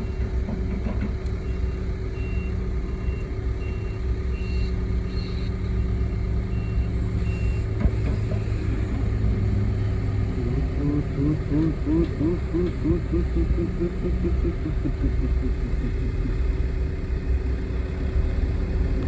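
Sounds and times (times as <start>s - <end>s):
diesel engine running: 0.0s - 19.0s
reversing alarm beeping: 1.4s - 5.9s, 6.5s - 7.6s.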